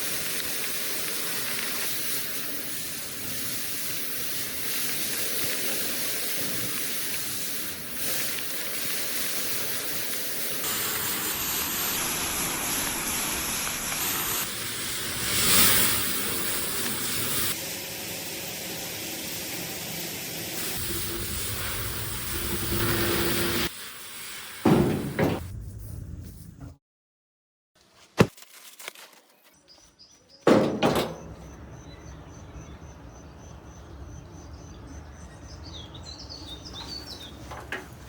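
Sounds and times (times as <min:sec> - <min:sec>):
steady hissing noise: 0:00.0 - 0:25.4.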